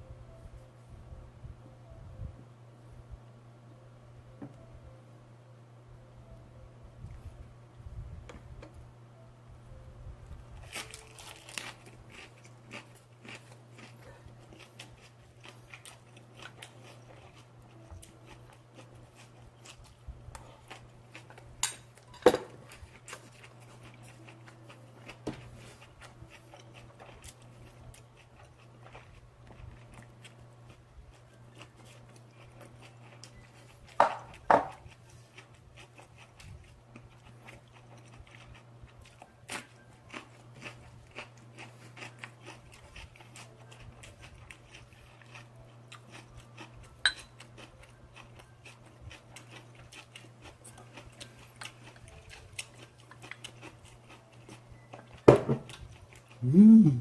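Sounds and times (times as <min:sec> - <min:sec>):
steady low hum: 0:00.0 - 0:57.0
person chewing: 0:10.6 - 0:21.6, 0:22.6 - 0:57.0.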